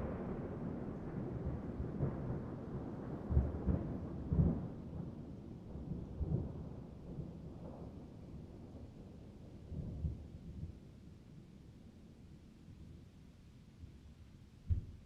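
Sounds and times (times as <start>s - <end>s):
rolling thunder: 0.0s - 8.8s
rain: 0.0s - 15.0s.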